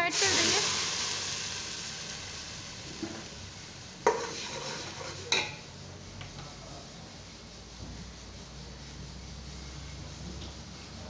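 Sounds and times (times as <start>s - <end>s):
onion paste sizzling in oil: 0.0s - 6.2s
metal ladle stirring: 4.0s - 5.7s.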